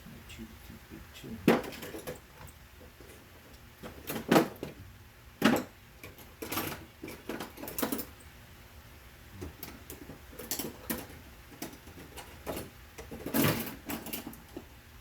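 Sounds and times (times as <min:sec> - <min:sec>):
objects knocking and clattering: 0:01.4 - 0:03.2, 0:03.8 - 0:04.8, 0:05.4 - 0:08.2, 0:09.4 - 0:14.7.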